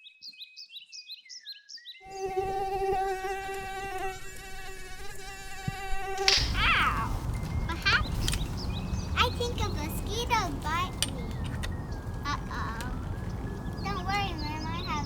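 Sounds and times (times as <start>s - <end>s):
insect buzzing in flight: 2.1s - 9.8s
high falling chirps: 6.2s - 15.0s.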